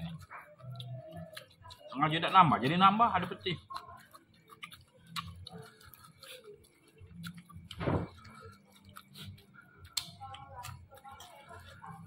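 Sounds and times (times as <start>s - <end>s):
person chewing food: 0.0s - 12.0s
lip smacks: 3.8s - 11.4s.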